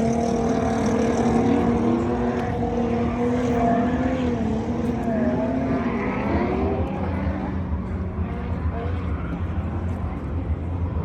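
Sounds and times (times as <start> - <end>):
rumble of other vehicles: 0.0 - 11.0.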